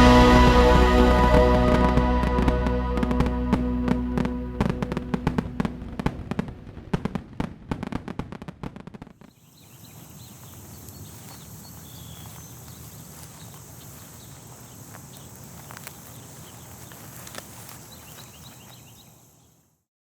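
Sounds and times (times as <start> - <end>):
music: 0.0 - 6.2.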